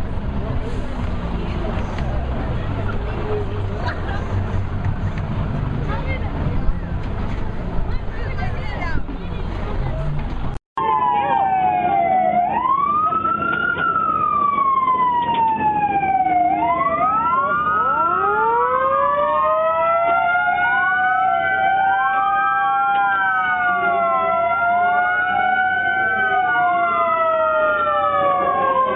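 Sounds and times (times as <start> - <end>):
emergency sirens wailing: 10.8 - 28.9.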